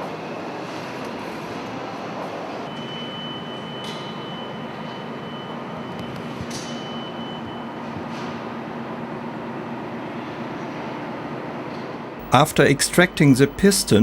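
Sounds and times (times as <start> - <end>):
faint high whine: 12.2 - 14.0.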